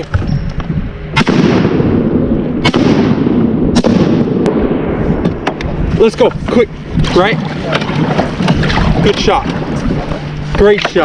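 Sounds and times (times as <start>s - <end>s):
continuous rushing noise: 0.0s - 11.0s
shotgun shots: 1.1s - 4.8s.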